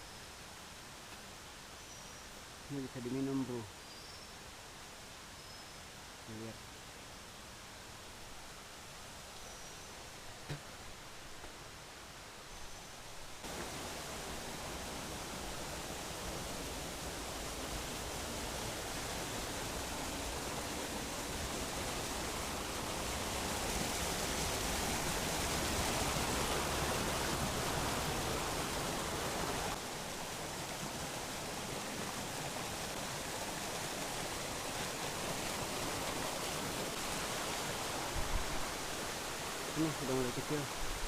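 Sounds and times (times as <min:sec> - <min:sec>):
stream rushing over rocks: 0:13.1 - 0:41.0.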